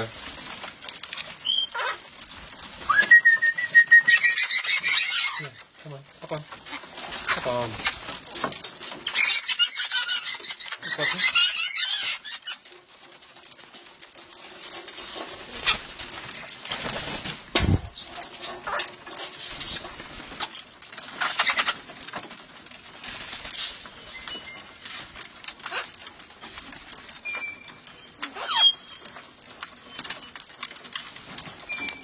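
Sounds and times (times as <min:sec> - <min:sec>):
bird claws scratching and clicking: 0:00.0 - 0:32.0
wings fluttering and rustling: 0:00.0 - 0:32.0
low cooing calls: 0:02.8 - 0:05.6.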